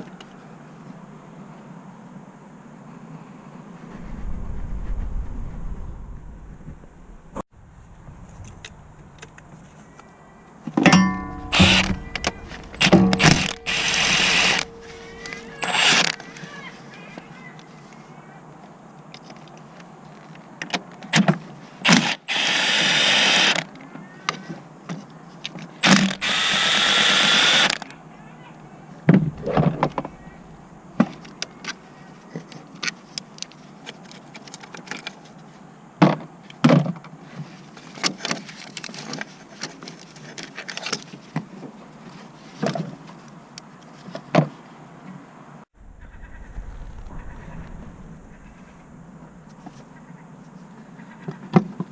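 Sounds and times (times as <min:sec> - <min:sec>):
cordless power tool whirring: 0:11.4 - 0:16.2, 0:25.8 - 0:27.8.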